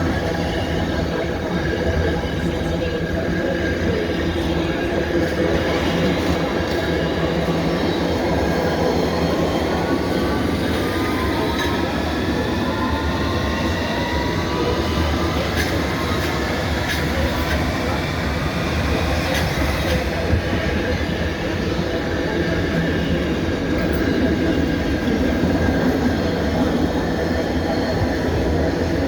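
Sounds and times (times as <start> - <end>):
train rumbling on rails: 0.0 - 29.0
wheels whining and squealing: 5.3 - 20.7.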